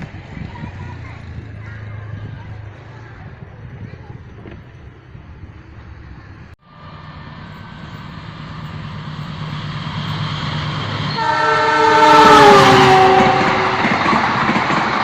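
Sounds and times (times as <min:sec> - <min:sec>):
diesel train rumbling: 0:00.0 - 0:15.0
locomotive horn chord: 0:11.0 - 0:14.1.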